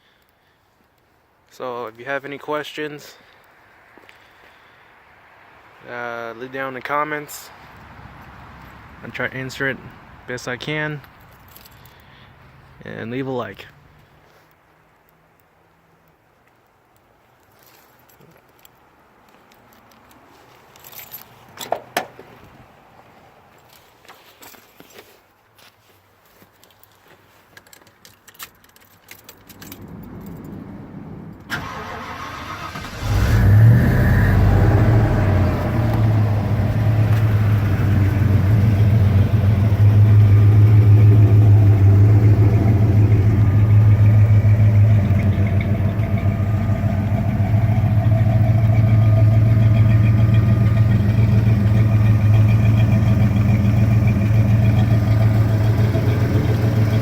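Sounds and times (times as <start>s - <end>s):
car engine cranking and idling: 31.4s - 57.0s.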